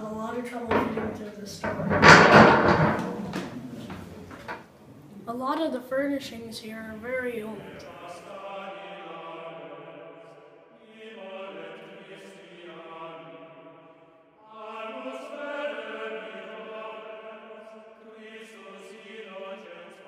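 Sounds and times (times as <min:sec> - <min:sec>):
slow choral chant: 0:07.2 - 0:20.0.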